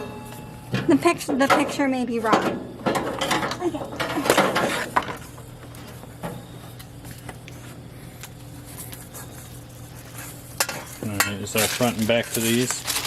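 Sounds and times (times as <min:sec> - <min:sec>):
metal grill parts clattering: 0:00.0 - 0:05.2, 0:10.6 - 0:12.8.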